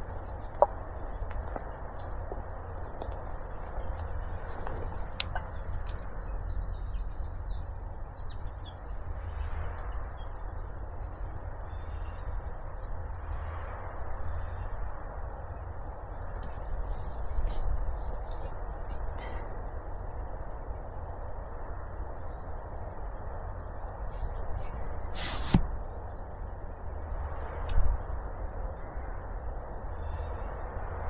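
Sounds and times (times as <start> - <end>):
small birds calling: 0.0 - 13.0, 29.8 - 30.7
low background rumble: 0.0 - 31.0.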